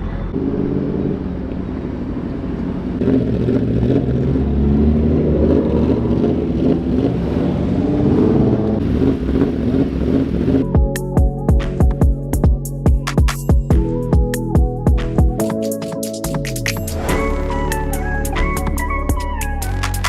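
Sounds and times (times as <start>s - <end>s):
road noise: 0.0s - 10.7s
car engine running: 0.0s - 10.8s.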